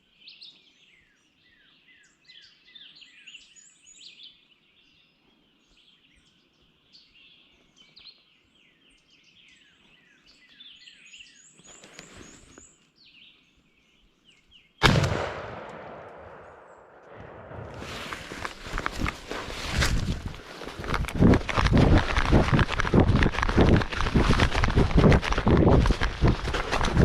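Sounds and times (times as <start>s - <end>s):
songbirds chirping and singing: 0.0s - 14.8s
loud shotgun blast: 14.8s - 17.9s.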